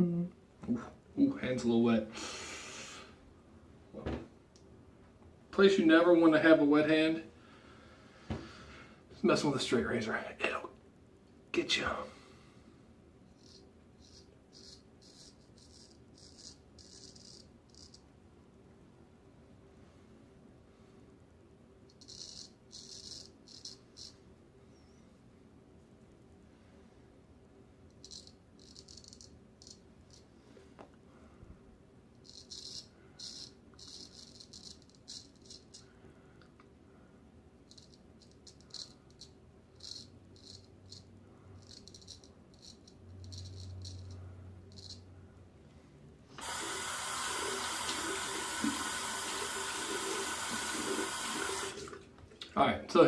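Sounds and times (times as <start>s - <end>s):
razor scraping stubble: 13.4s - 18.0s
tap water running: 46.4s - 52.5s.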